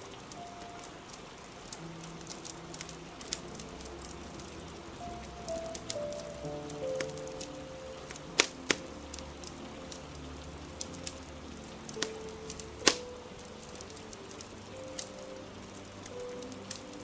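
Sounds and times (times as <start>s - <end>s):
faint soft music: 0.0s - 17.0s
rain hiss: 0.0s - 17.0s
wood fire crackling and popping: 0.0s - 17.0s.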